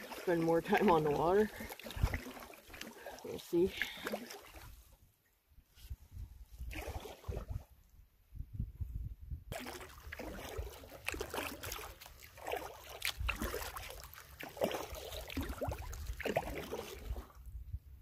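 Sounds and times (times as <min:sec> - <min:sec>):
water dripping from paddle: 0:00.0 - 0:04.6, 0:09.6 - 0:17.1
canoe paddle strokes in water: 0:00.0 - 0:05.0, 0:09.5 - 0:17.5.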